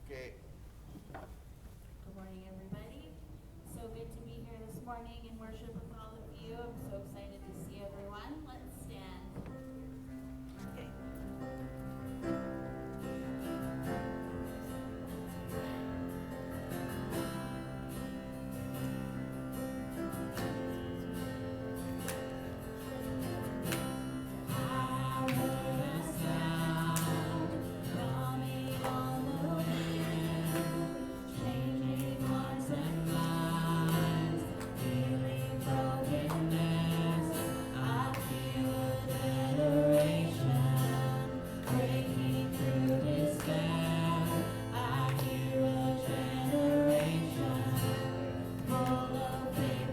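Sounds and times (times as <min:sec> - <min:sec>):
acoustic guitar playing: 0:04.1 - 0:49.9
voices singing: 0:23.1 - 0:49.9.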